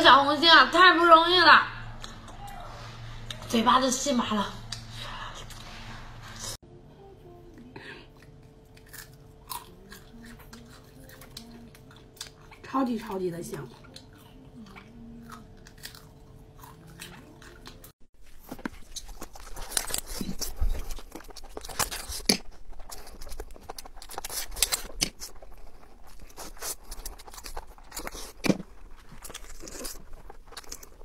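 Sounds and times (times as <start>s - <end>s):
person chewing and crunching food: 8.1s - 12.7s, 13.5s - 31.0s.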